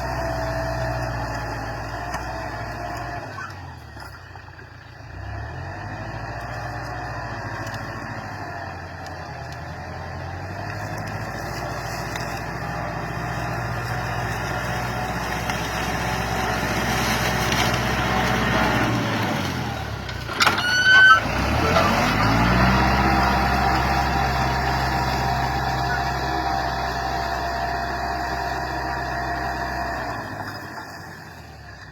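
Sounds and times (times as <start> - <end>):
tractor engine running: 0.0 - 31.9.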